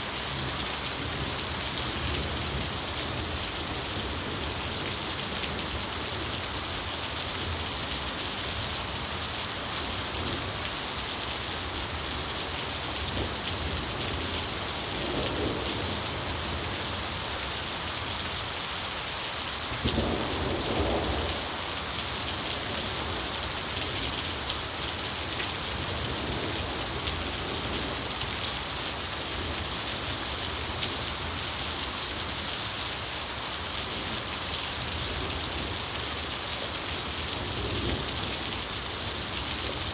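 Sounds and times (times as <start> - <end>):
steady rain falling: 0.0 - 39.9
low rolls of thunder: 19.8 - 21.7.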